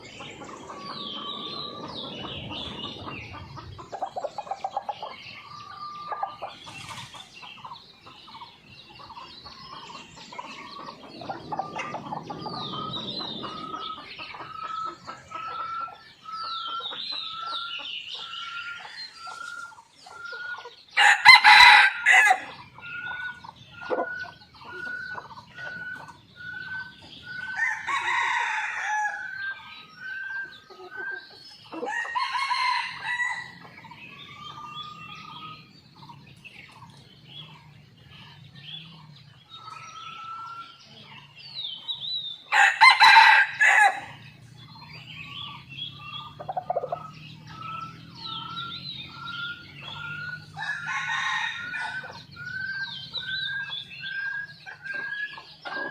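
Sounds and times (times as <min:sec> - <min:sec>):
rooster crowing: 0:21.0 - 0:23.3, 0:27.3 - 0:29.6, 0:31.8 - 0:33.7, 0:42.5 - 0:44.3, 0:45.4 - 0:53.0.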